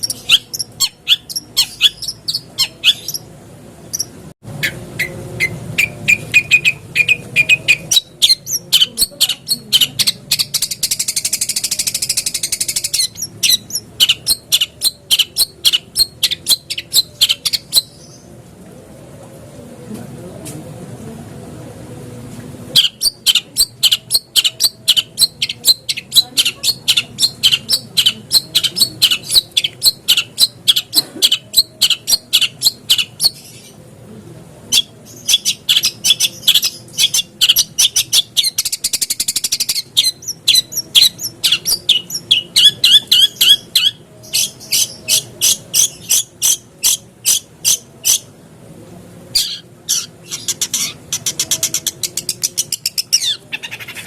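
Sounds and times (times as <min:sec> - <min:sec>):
buzzy bird trill: 0:00.0 - 0:18.3, 0:22.8 - 0:33.7.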